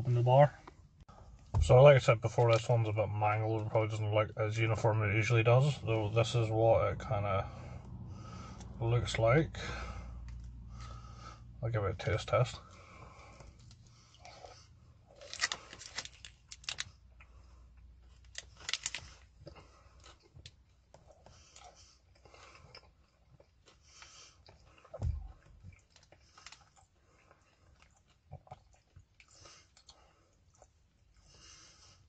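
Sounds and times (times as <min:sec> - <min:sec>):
person chewing: 0:13.3 - 0:31.3.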